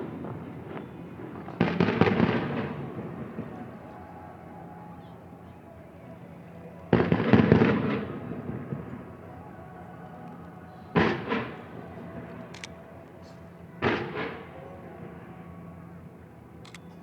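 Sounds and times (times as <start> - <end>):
fireworks bursting: 0.0 - 3.7.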